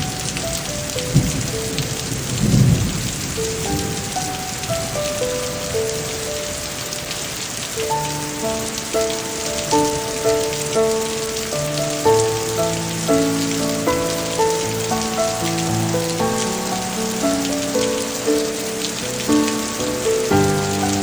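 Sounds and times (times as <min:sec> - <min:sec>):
heavy rain falling: 0:00.0 - 0:21.0
instrumental melody of held notes: 0:00.0 - 0:21.0.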